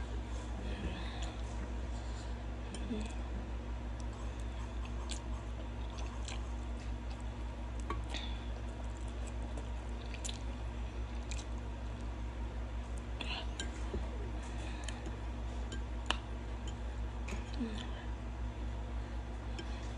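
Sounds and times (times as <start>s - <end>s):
steady low hum: 0.0s - 19.9s
chewing and slurping noodles: 4.0s - 7.4s.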